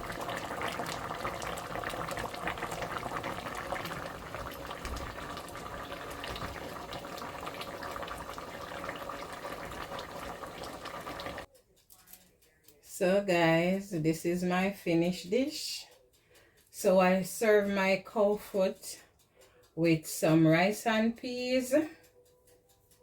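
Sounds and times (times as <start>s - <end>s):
stew bubbling with small pops: 0.0s - 11.5s.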